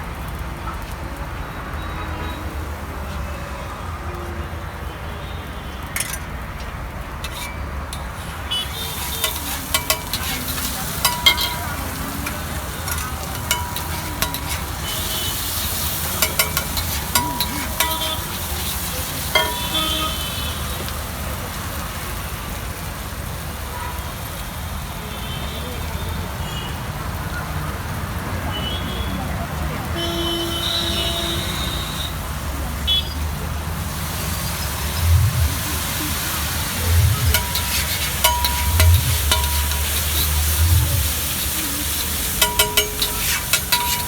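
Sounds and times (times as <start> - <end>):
eggs sizzling in a pan: 6.0 - 23.2, 30.6 - 44.0
utensil knocking against pan: 8.8 - 14.9, 16.2 - 18.4, 19.4 - 20.0, 37.2 - 41.1, 42.2 - 44.0.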